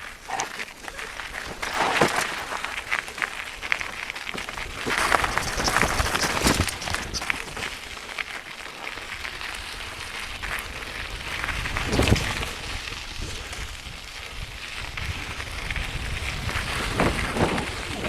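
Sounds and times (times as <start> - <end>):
bike clicks and rattles: 0.0 - 18.0
bike tyres crunching on gravel: 0.0 - 18.0
bike jolt: 0.2 - 8.1.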